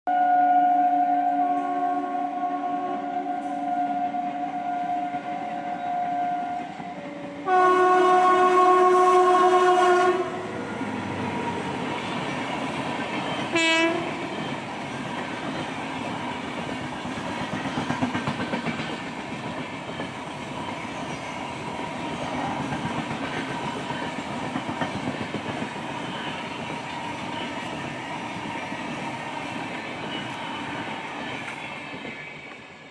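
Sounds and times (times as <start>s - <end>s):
train horn blast: 0.1s - 10.6s, 13.5s - 14.5s
train rumble and wheel clatter: 1.0s - 32.9s.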